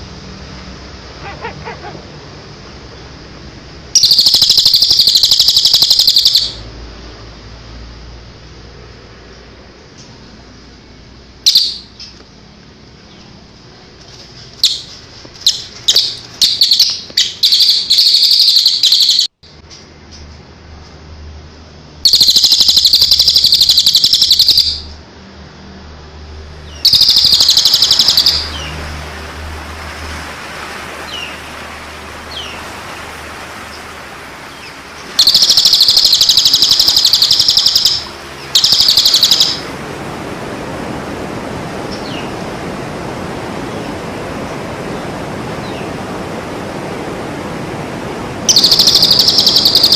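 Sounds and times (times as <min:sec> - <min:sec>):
bird chips: 0:04.0 - 0:06.6, 0:11.5 - 0:12.2, 0:14.0 - 0:20.2, 0:22.1 - 0:24.9, 0:26.8 - 0:29.0, 0:34.4 - 0:39.7, 0:48.5 - 0:49.9
songbird buzzing trills: 0:26.8 - 0:28.8, 0:34.6 - 0:39.7.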